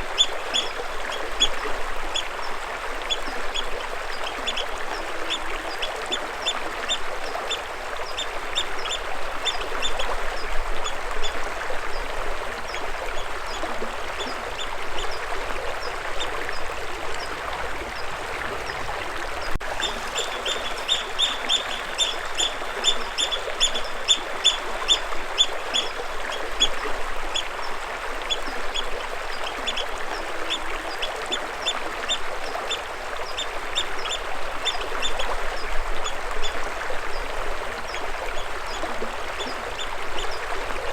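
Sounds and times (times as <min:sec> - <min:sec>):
stream water rushing: 0:00.0 - 0:40.9
bird chirping: 0:19.8 - 0:25.0.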